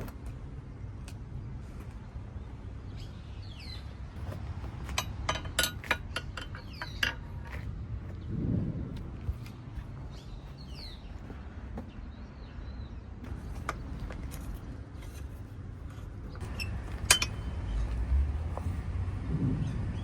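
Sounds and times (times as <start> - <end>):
low steady rumble: 0.0 - 20.0
light clicks and clinks: 4.2 - 7.7, 16.2 - 18.8.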